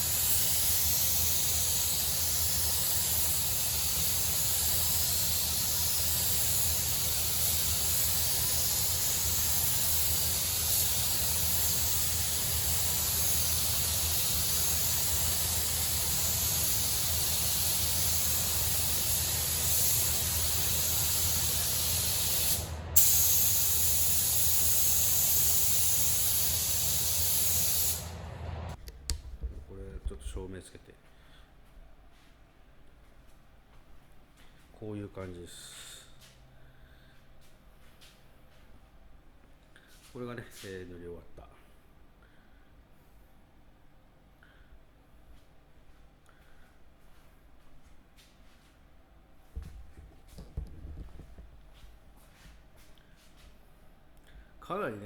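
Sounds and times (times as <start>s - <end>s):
paint spray gun hissing: 0.0s - 28.2s.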